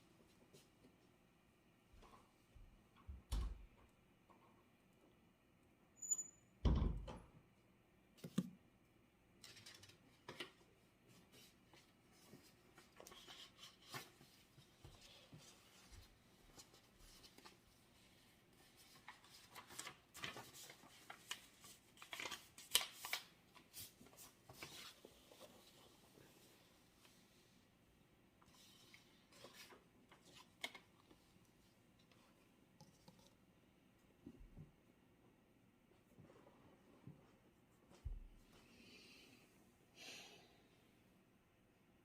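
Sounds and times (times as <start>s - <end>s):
paper rustling: 9.4s - 26.5s, 28.4s - 31.3s.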